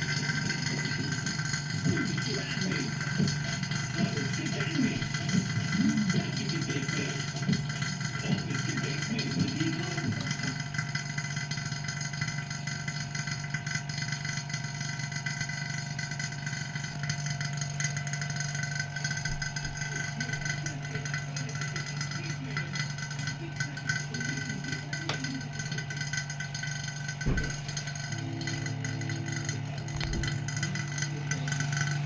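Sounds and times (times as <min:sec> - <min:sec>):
small motor humming: 0:00.0 - 0:32.0
faint voices: 0:01.8 - 0:10.8, 0:19.2 - 0:32.0.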